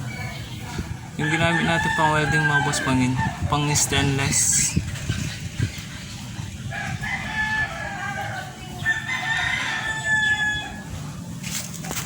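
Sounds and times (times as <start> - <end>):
rooster crowing: 1.2 - 3.3, 6.7 - 11.0.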